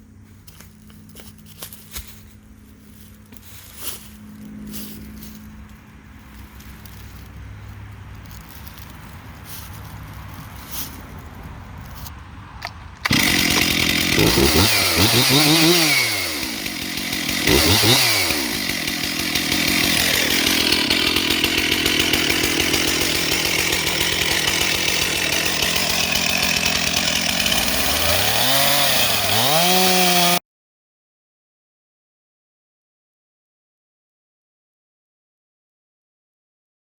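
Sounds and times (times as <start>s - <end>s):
chainsaw engine revving: 12.6s - 30.4s.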